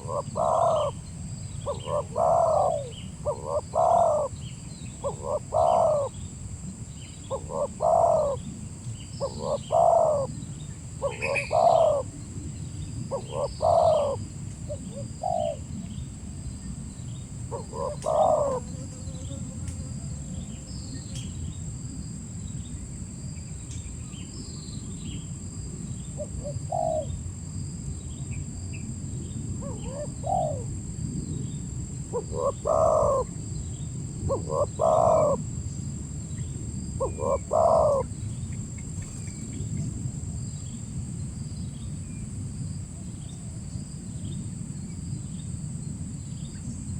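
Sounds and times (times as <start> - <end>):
dove cooing: 0.0 - 1.0, 1.6 - 6.2, 7.2 - 8.6, 9.2 - 10.4, 11.0 - 12.2, 13.1 - 15.8, 17.5 - 18.8, 26.2 - 27.1, 29.6 - 30.8, 32.1 - 33.4, 34.2 - 35.5, 37.0 - 38.2
small birds chirping: 6.9 - 16.1.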